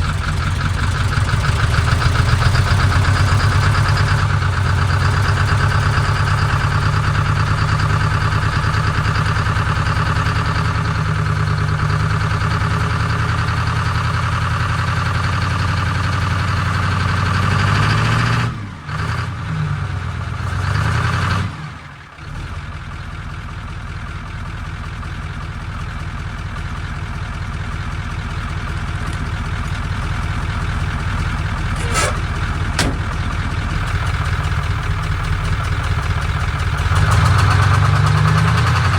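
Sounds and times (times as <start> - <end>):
engine running: 27.9 - 38.9.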